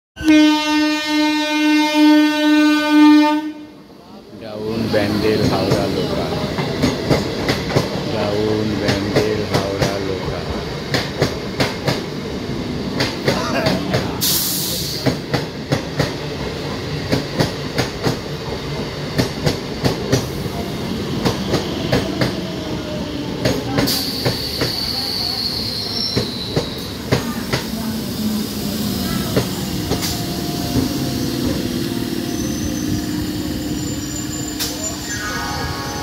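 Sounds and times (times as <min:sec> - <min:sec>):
high squeal falling in pitch: 0:32.1 - 0:36.0.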